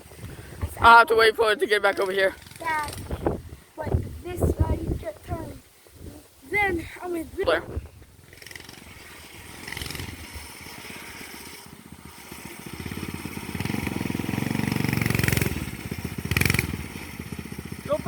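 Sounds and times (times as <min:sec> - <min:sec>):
small motorbike engine running: 0:08.2 - 0:18.0.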